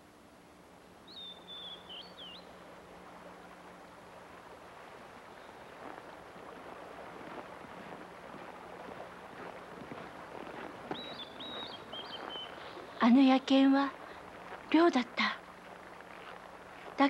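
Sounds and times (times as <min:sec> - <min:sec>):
small bird whistled call: 0:01.1 - 0:02.5, 0:11.0 - 0:12.6.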